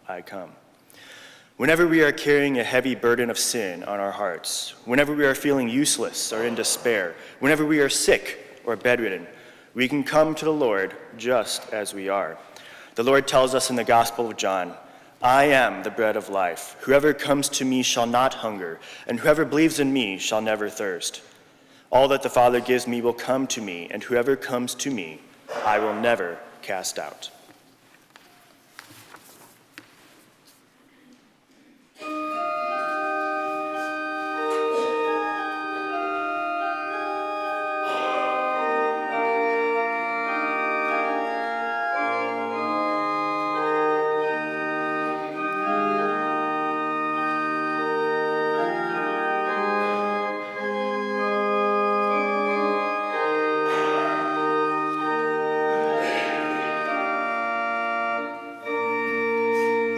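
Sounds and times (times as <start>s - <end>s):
church organ playing a hymn: 1.1s - 27.4s, 32.0s - 59.9s.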